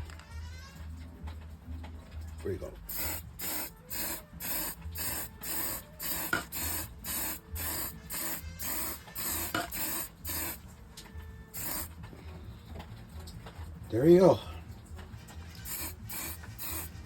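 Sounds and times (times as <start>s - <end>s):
spray paint can hissing: 2.9s - 10.7s, 11.5s - 12.0s, 15.4s - 17.0s.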